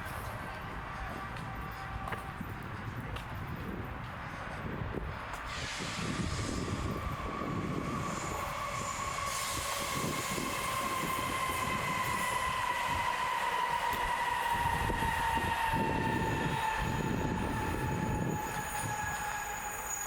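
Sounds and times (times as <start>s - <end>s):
tram running on rails: 0.0s - 20.0s
high wheel squeal: 5.5s - 20.0s.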